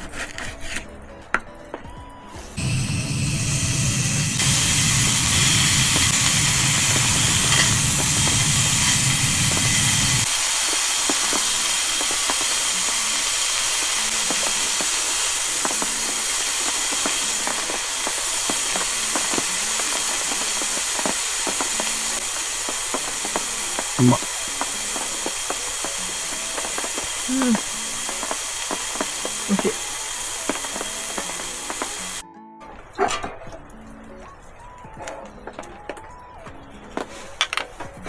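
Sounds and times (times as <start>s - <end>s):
food sizzling in a frying pan: 2.4s - 32.2s.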